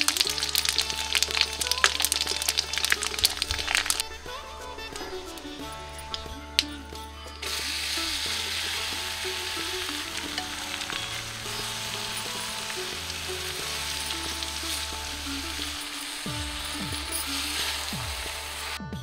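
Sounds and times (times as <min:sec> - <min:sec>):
food sizzling in hot oil: 0:00.0 - 0:06.7, 0:07.4 - 0:18.8
spatula stirring: 0:00.0 - 0:18.8.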